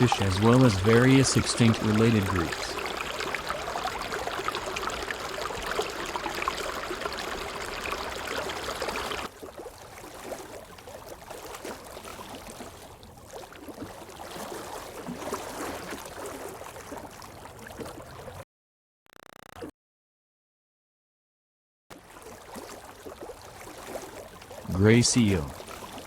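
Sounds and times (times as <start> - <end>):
quiet water sound: 0.0 - 18.4, 21.9 - 26.0
water rushing and splashing: 0.0 - 18.4, 22.0 - 26.0.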